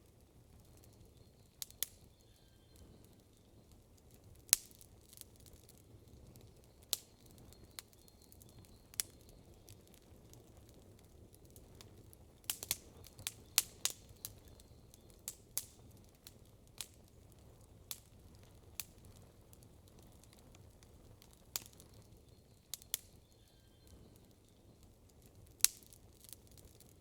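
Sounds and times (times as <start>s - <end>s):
burning wood popping: 0.0s - 27.0s
campfire crackling: 0.0s - 27.0s.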